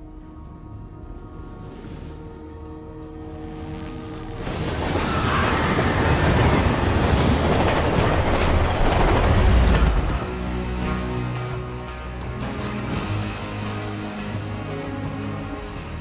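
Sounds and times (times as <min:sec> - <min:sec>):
film score music: 0:00.0 - 0:16.0
train rumble and rail clatter: 0:02.0 - 0:13.7.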